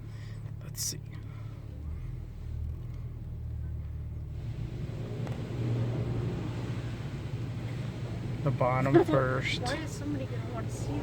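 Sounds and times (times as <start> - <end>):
car idling rumble: 0.0 - 11.0
car wash water spray hiss: 4.3 - 11.0.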